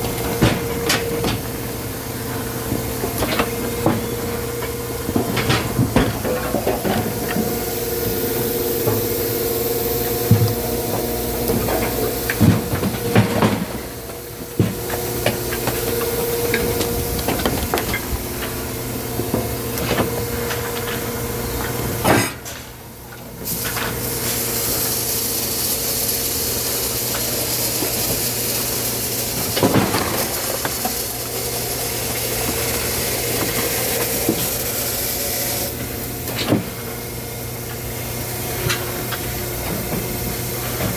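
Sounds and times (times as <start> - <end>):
machinery humming and hissing: 0.0 - 40.9.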